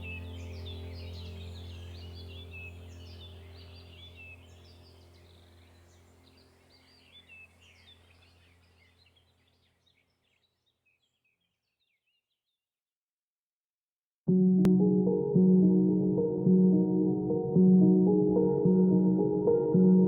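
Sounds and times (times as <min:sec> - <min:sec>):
low steady hum: 0:00.0 - 0:09.1
birds chirping: 0:00.0 - 0:12.2.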